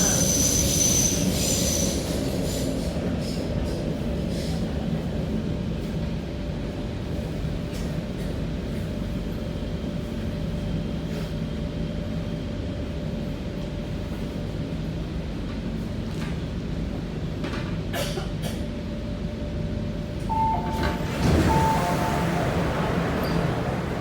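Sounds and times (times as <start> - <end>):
train wheels rumbling: 20.1 - 24.0.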